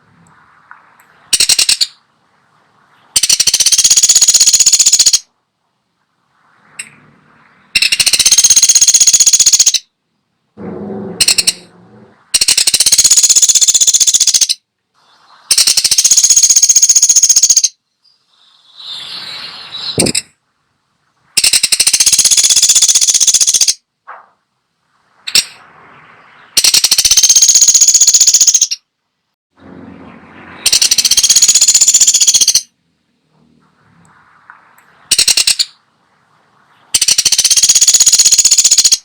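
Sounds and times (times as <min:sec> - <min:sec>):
woodpecker rattling trills: 0:01.1 - 0:02.0, 0:03.0 - 0:05.3, 0:07.8 - 0:09.9, 0:10.6 - 0:14.6, 0:15.5 - 0:17.8, 0:21.4 - 0:23.8, 0:25.3 - 0:28.9, 0:30.1 - 0:32.7, 0:35.1 - 0:35.8, 0:36.9 - 0:39.0.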